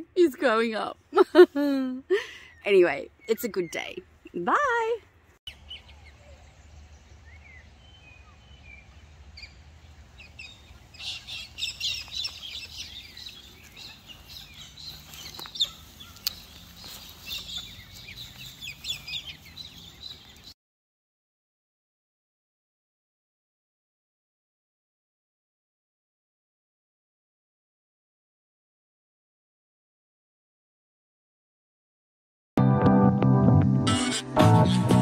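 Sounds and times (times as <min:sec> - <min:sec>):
small birds chirping: 0:00.2 - 0:20.6.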